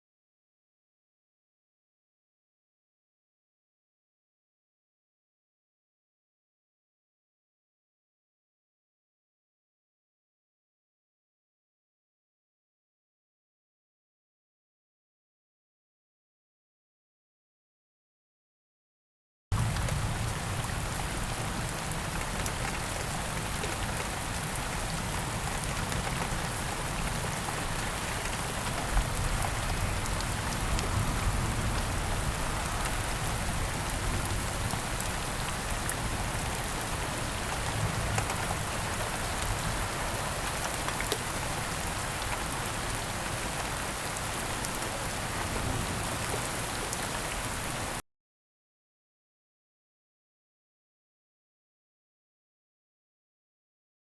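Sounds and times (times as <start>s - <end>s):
steady rain falling: 19.5s - 48.0s.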